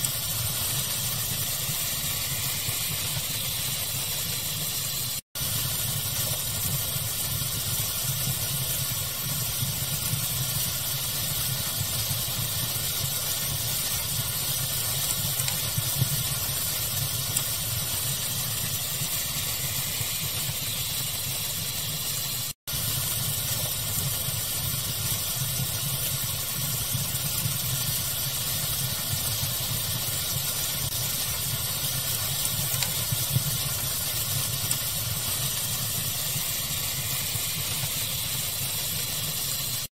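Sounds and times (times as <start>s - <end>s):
fire crackling: 0.0s - 39.9s
steady hiss: 0.0s - 39.9s.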